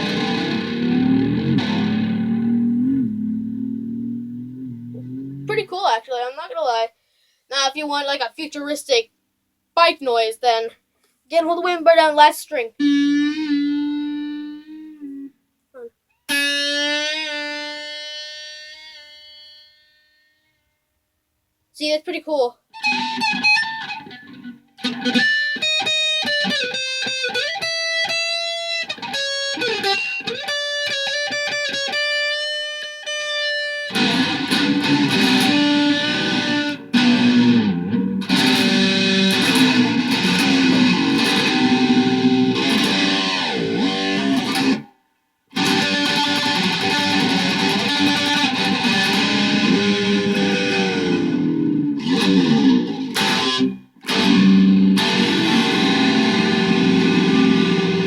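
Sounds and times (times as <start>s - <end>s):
electric guitar clean notes: 0.0s - 5.5s, 12.8s - 15.3s, 22.8s - 44.9s, 45.5s - 58.0s
distorted electric guitar with bends: 0.0s - 5.7s, 12.8s - 15.3s, 16.3s - 19.9s, 22.8s - 58.0s.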